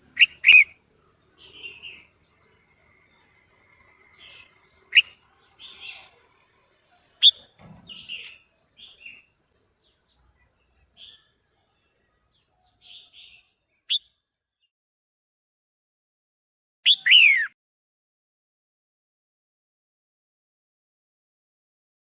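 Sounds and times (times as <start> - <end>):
bird chirping: 0.0 - 14.7, 16.9 - 17.6.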